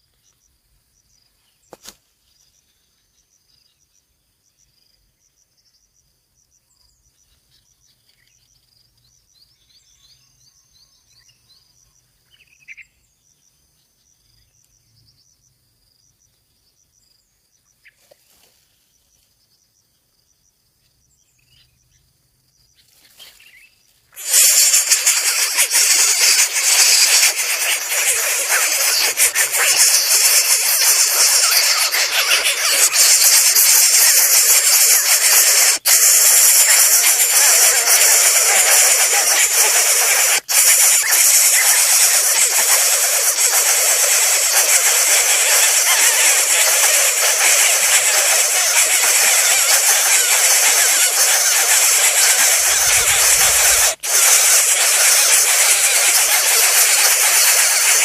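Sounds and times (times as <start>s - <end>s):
short bird chirps: 22.7s - 58.0s
loud steady hiss: 24.2s - 58.0s.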